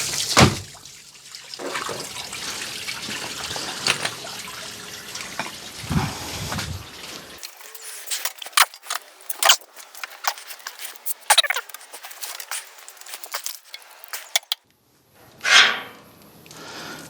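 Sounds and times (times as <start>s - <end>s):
parts clattering and rattling: 3.0s - 4.4s, 7.4s - 14.6s.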